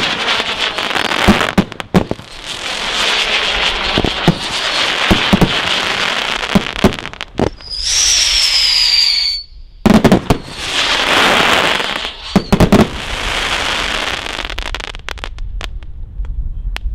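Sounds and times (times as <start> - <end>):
firework crackling: 0.0 - 16.3
firework loud reports: 0.0 - 16.6
firework high whistle: 2.3 - 6.6, 7.5 - 14.6.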